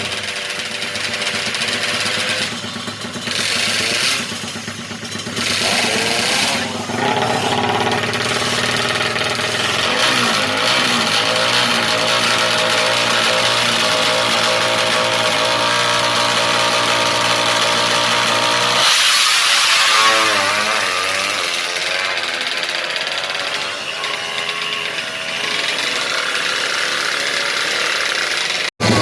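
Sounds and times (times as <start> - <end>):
motorcycle engine idling: 0.0 - 15.2.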